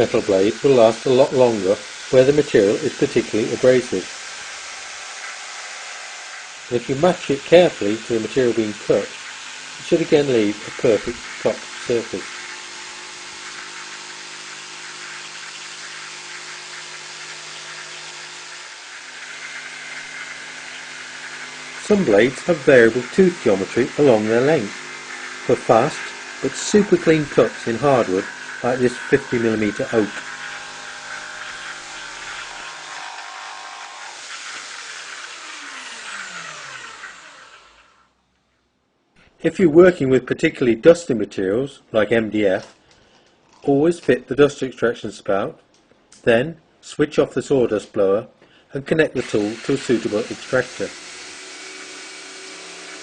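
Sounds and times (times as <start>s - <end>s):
jigsaw cutting: 0.0s - 38.2s, 49.1s - 53.0s.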